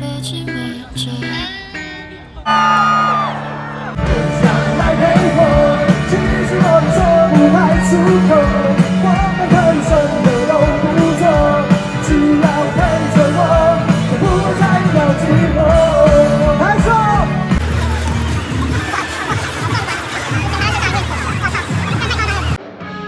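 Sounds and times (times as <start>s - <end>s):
live rock band playing: 0.2s - 22.6s
person singing: 3.3s - 17.6s.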